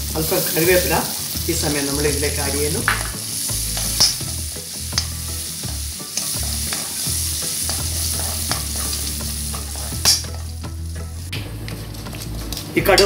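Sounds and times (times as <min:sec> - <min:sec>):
food sizzling in oil: 0:00.0 - 0:12.5
metal ladle scraping wok: 0:02.9 - 0:11.1.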